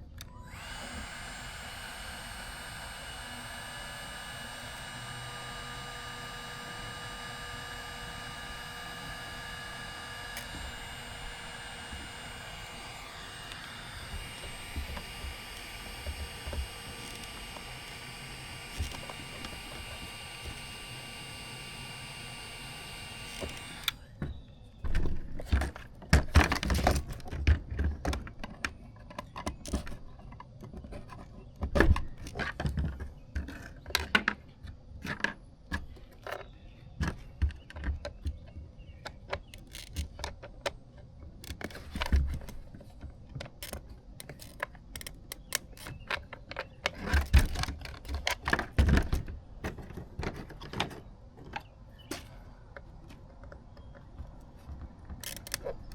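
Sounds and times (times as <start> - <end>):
plastic parts and tools handled: 0.1 - 24.0, 41.4 - 55.9
heat gun fan motor running: 0.1 - 24.1.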